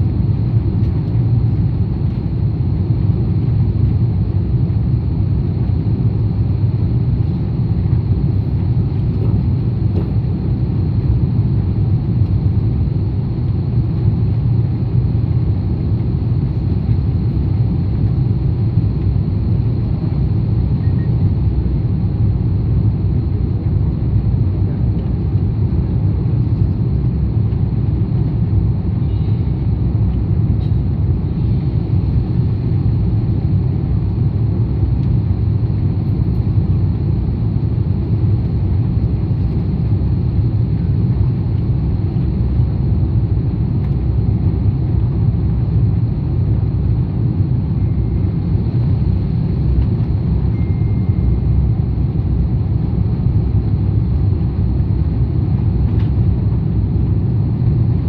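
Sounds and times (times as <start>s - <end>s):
faint steady high tone: 50.5s - 51.3s.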